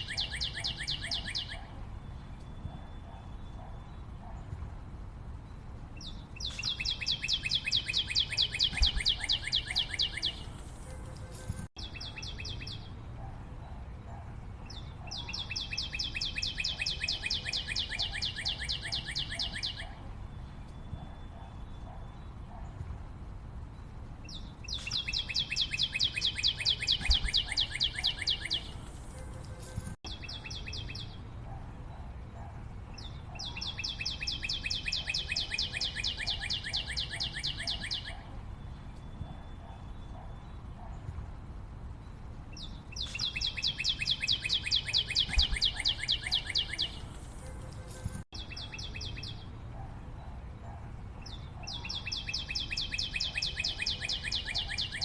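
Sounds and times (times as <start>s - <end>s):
forest background noise: 0.0s - 55.0s
bird high pulsed trills: 6.0s - 22.6s, 24.4s - 32.1s, 42.9s - 49.4s.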